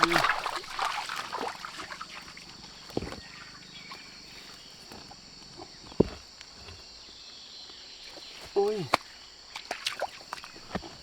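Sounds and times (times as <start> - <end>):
insect chorus: 0.0 - 11.0
dull thuds: 2.8 - 3.4.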